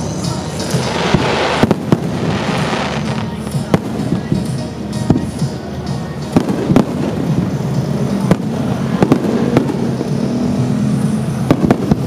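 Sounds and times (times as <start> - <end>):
firework shells bursting: 0.6 - 4.3.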